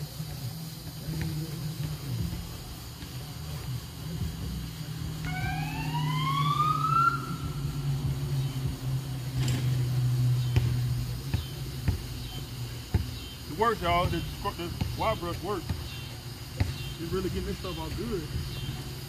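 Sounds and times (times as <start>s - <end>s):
rising whistle-like glide: 5.2s - 8.0s.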